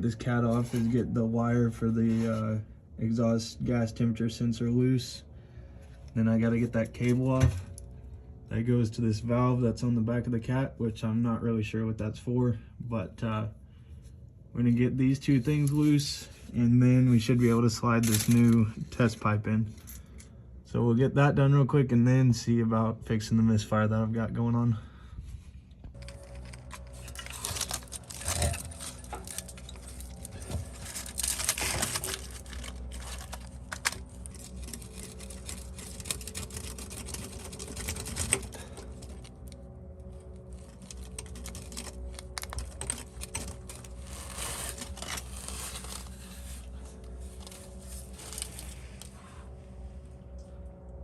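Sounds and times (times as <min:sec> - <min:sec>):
steady low hum: 0:00.0 - 0:51.0
tools clicking and rattling: 0:26.0 - 0:39.6, 0:40.5 - 0:46.7, 0:47.3 - 0:49.1.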